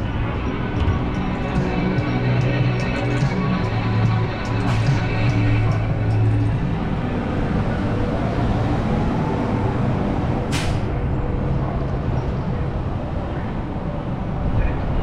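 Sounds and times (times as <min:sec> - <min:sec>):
heavy vehicle engine rumbling: 0:00.0 - 0:15.0
air hiss: 0:10.5 - 0:10.9.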